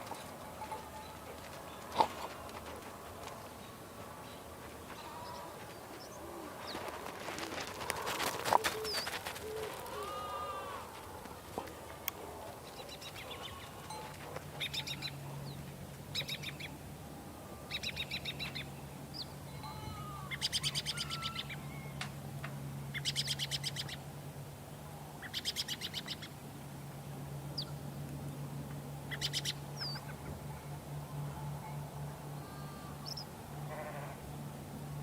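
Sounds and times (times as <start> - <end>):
steady low hum: 0.0 - 35.0
bird trills: 17.6 - 22.0, 29.1 - 30.3.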